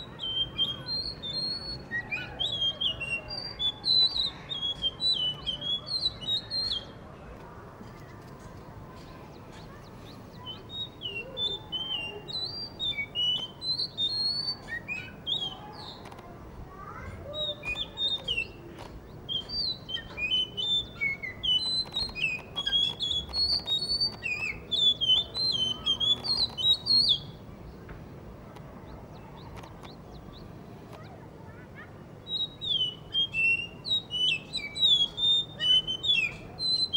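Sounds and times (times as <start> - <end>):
thrush singing whistled notes: 0.0 - 6.9, 9.8 - 16.1, 17.3 - 27.4, 32.3 - 36.9.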